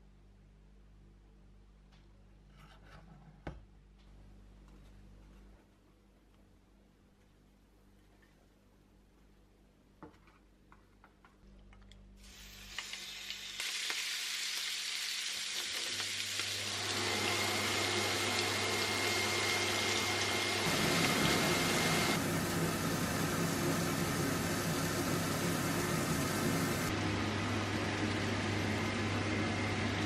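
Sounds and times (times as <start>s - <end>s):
shrimp sizzling in hot oil: 12.2s - 26.9s.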